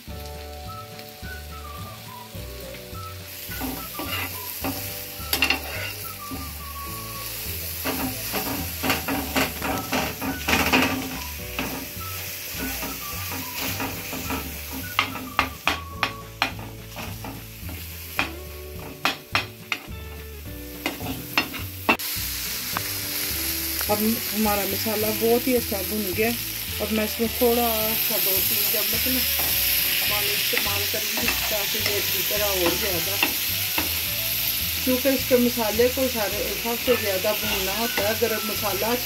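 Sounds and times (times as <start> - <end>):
spice paste sizzling in oil: 0.0 - 39.0
utensil scraping pan: 3.5 - 6.5, 7.8 - 19.9, 29.0 - 33.9, 36.3 - 38.4
utensil clicking against pan: 7.8 - 11.8, 12.6 - 19.9.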